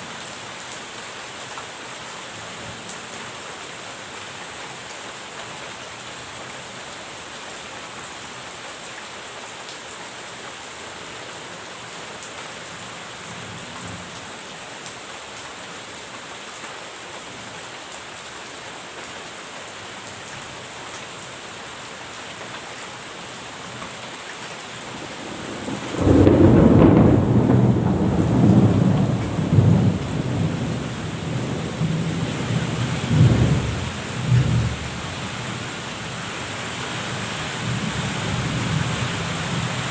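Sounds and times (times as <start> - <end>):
steady rain falling: 0.0 - 39.9
thunder rumbling: 25.0 - 34.9.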